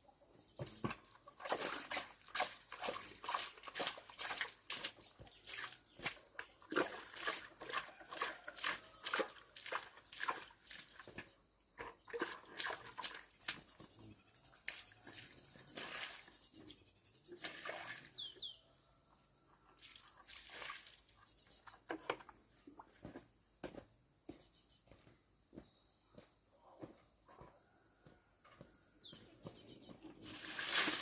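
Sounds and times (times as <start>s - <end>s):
bird chirp: 0.0s - 1.5s, 4.4s - 7.5s, 12.8s - 18.8s, 21.2s - 21.8s, 24.3s - 25.0s, 28.6s - 30.3s.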